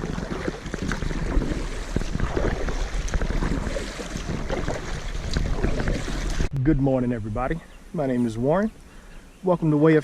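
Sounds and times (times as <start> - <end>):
water splashing around kayak: 0.0 - 6.5
wind buffeting microphone: 0.0 - 6.6.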